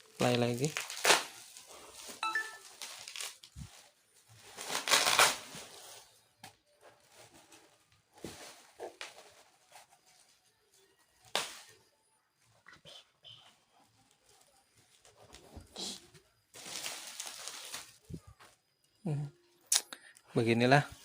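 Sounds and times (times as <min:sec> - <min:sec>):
rustling and handling noises: 0:00.0 - 0:11.7, 0:13.6 - 0:19.0
short electronic beep: 0:02.2 - 0:02.8.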